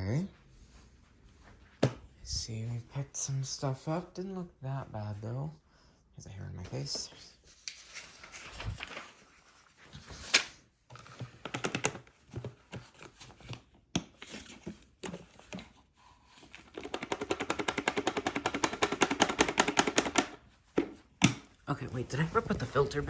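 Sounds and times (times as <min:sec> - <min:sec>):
plastic parts clicking and knocking: 0:10.9 - 0:15.8, 0:16.4 - 0:21.6.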